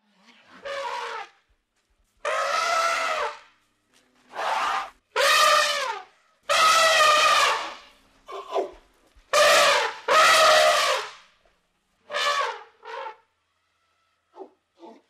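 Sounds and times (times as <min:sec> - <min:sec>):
elephant trumpeting: 0:02.2 - 0:03.4, 0:04.3 - 0:08.5, 0:09.3 - 0:11.1, 0:12.1 - 0:13.2.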